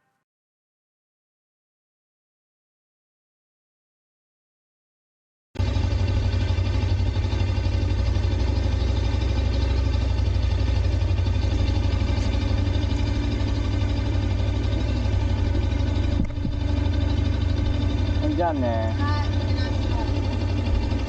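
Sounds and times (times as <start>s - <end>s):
motorcycle engine idling: 5.6s - 21.0s.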